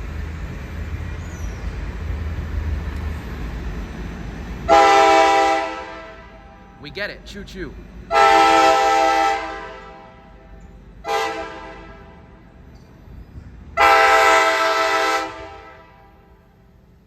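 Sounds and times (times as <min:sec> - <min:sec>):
train horn blasts: 0:04.7 - 0:06.7, 0:08.1 - 0:12.5, 0:13.8 - 0:16.5.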